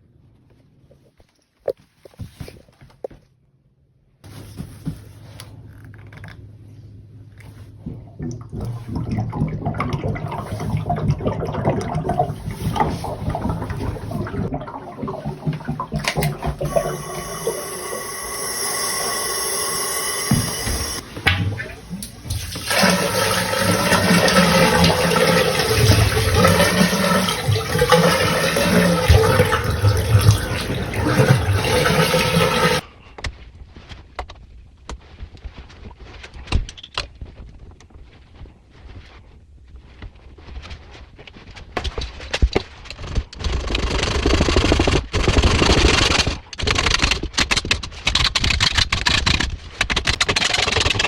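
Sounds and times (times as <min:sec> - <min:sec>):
water rushing through plumbing: 0:07.7 - 0:32.9.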